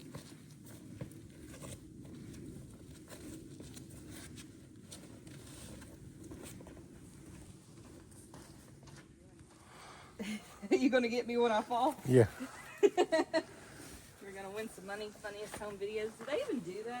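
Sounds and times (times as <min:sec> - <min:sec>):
footsteps on trail: 0:13.8 - 0:17.0.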